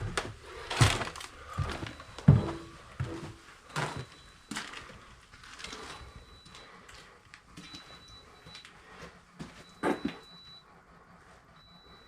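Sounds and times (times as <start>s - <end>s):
heavy footsteps down stairs: 0.0s - 5.0s, 7.5s - 10.6s.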